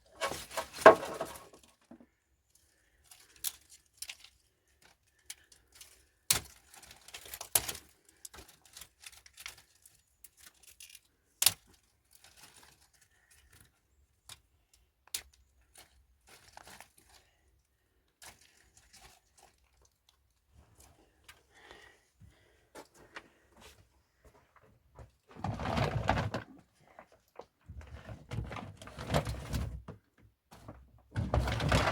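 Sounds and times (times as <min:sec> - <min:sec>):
rustling: 0:00.1 - 0:01.8.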